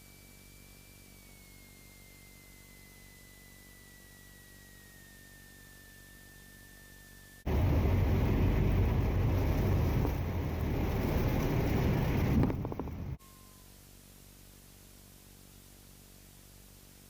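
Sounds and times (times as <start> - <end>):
thin whine falling in pitch: 0.0 - 7.8
airplane engine and cabin noise: 7.5 - 13.2.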